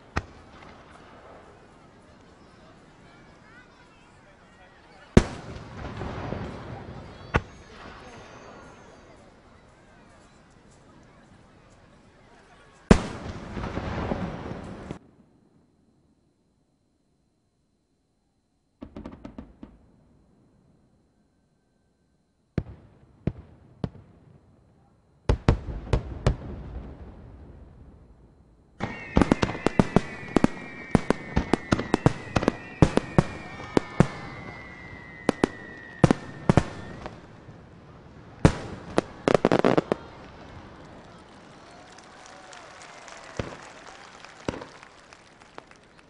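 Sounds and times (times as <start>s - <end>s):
crackling pops: 0.0s - 1.4s, 38.3s - 46.0s
firework sharp cracks: 0.0s - 2.2s, 5.1s - 9.0s, 12.9s - 15.0s, 18.8s - 19.8s, 28.8s - 46.0s
thin high whistle: 7.0s - 10.5s, 28.8s - 37.3s
firework loud bangs: 12.9s - 15.0s, 28.8s - 37.7s, 38.3s - 40.8s.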